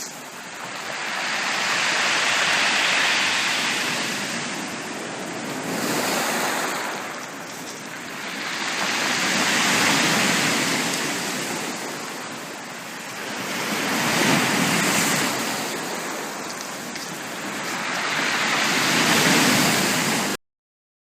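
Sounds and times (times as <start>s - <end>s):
sea waves breaking on beach: 0.0s - 20.4s.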